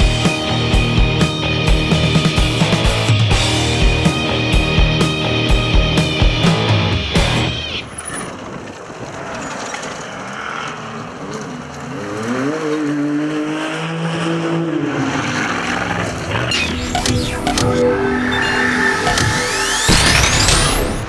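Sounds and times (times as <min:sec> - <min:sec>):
rally car engine: 0:00.0 - 0:21.0
tyres on gravel: 0:07.6 - 0:13.0.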